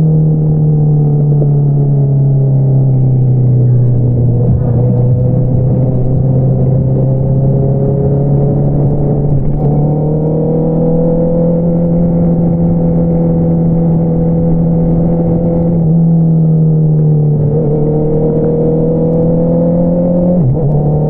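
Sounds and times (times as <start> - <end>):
motorcycle engine running: 0.6 - 15.7.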